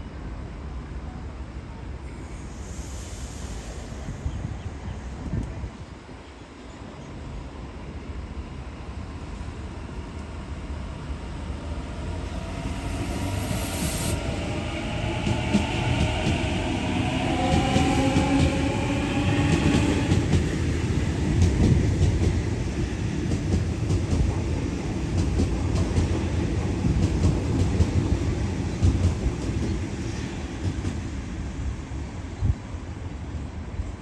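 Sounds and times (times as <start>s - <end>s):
train wheels rumbling on rails: 8.2s - 33.3s
electric train motor whine: 11.0s - 19.7s.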